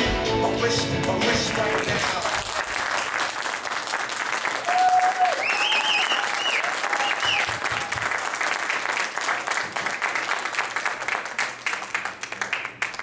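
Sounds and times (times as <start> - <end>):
audience applauding: 0.5 - 13.0
cheers and whoops: 4.5 - 8.2.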